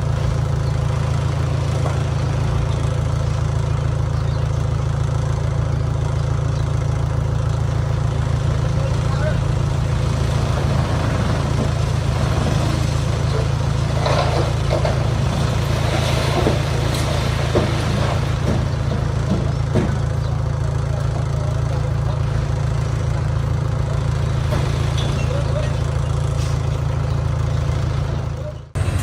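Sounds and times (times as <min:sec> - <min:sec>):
diesel engine running: 0:00.0 - 0:29.0
metal knocks and clanks: 0:13.3 - 0:15.4, 0:16.0 - 0:20.2.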